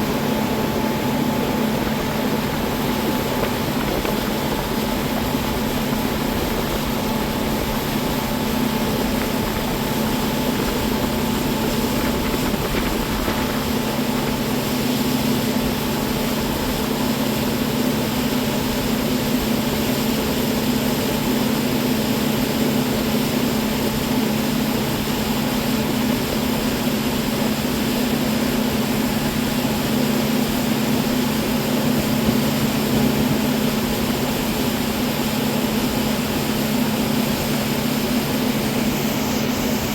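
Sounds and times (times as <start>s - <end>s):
rushing wind: 0.0s - 20.2s
boat motor running: 0.0s - 39.9s
rushing water: 0.0s - 39.9s.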